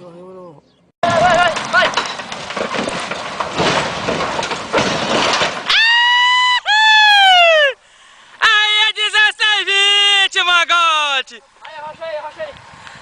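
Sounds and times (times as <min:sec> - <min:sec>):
rumbling and clattering with knocks: 0:01.0 - 0:06.4
high shouted cries: 0:05.7 - 0:07.8.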